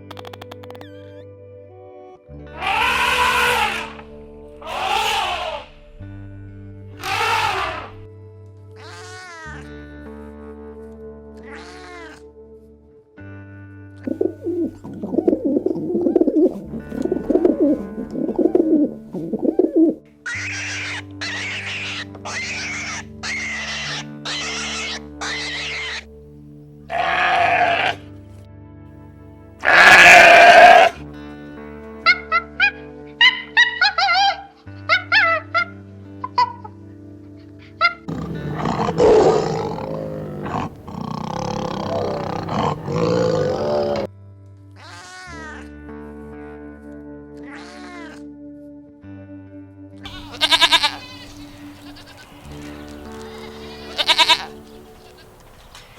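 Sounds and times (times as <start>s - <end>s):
background music: 0.0s - 55.9s
lion roaring: 2.6s - 5.7s, 7.0s - 8.0s, 38.1s - 44.1s
dove cooing: 14.0s - 20.0s, 38.1s - 44.1s, 50.1s - 55.9s.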